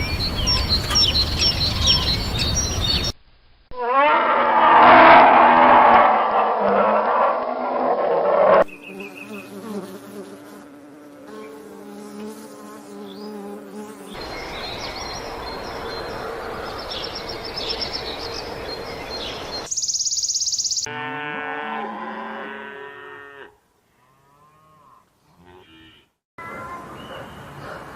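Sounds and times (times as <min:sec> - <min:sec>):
insects buzzing: 0:08.6 - 0:20.9
high chirps: 0:19.6 - 0:20.9
cow mooing: 0:20.9 - 0:26.7.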